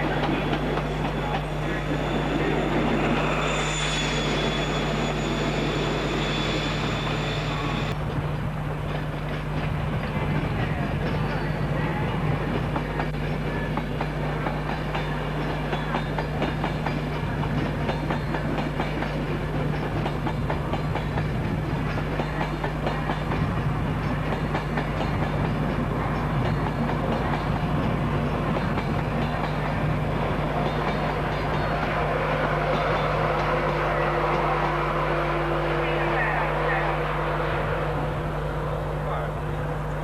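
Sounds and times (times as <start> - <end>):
train wheels clicking over rail joints: 12.3 - 33.7.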